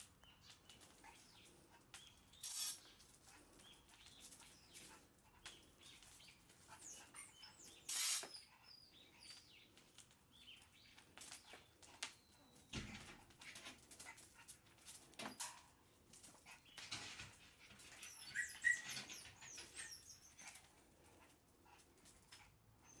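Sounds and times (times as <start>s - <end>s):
puppy paws tapping and clicking: 0.0s - 23.0s
puppy squeaking: 17.9s - 20.6s.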